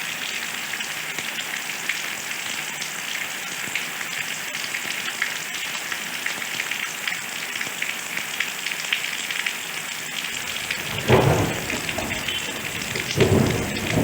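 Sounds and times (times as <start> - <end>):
steady rain patter: 0.0 - 14.0
thunder rumble: 10.4 - 14.0.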